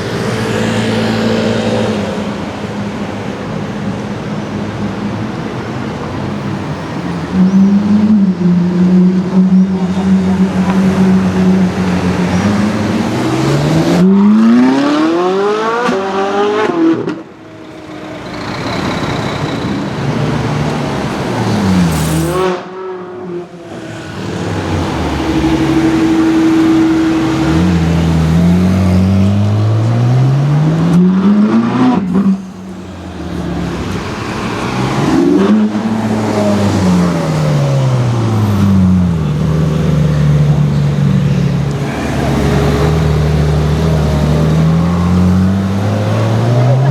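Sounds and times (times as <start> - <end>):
sports car accelerating: 6.9 - 17.4, 19.9 - 46.9
car driving by: 23.7 - 46.9.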